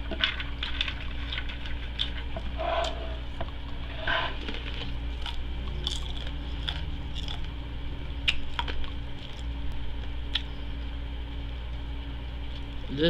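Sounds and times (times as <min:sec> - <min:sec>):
steady low hum: 0:00.0 - 0:13.0
wet mouth clicks and smacks: 0:08.2 - 0:09.5.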